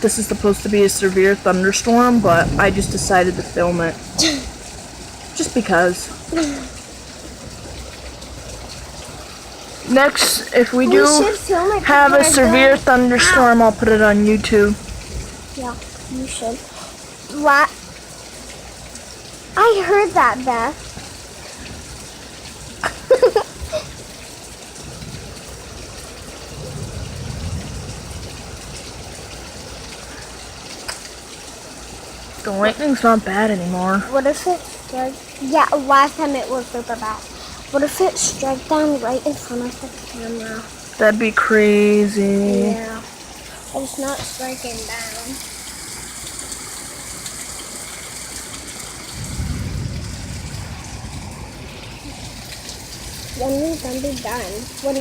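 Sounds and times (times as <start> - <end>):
low thunder rumble: 0.0 - 16.8, 19.9 - 30.7, 49.0 - 55.0
heavy rain pouring: 0.0 - 55.0
low rumble: 2.1 - 5.0.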